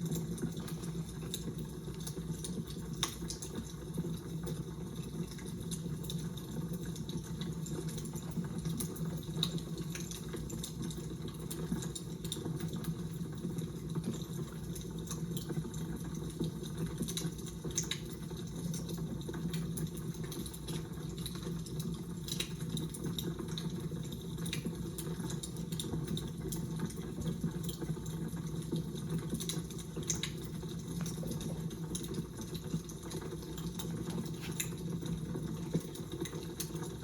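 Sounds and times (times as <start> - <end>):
fire crackling: 0.0 - 12.7, 28.5 - 36.9.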